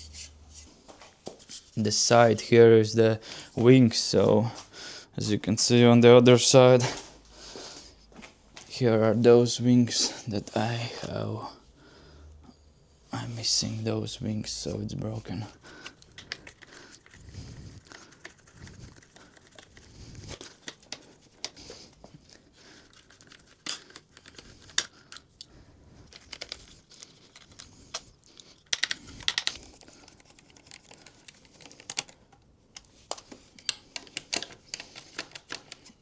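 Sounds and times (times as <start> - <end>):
hand tools clicking and tapping: 15.8 - 17.2, 27.4 - 29.6, 30.6 - 36.0
plastic panels rustling: 17.8 - 25.4, 26.0 - 36.0.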